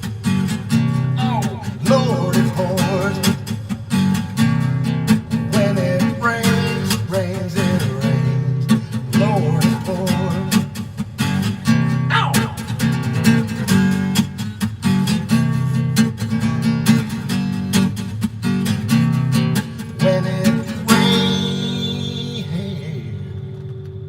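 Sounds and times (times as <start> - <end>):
strummed guitar chords: 0.0 - 24.0
lead guitar bent notes: 0.8 - 3.2.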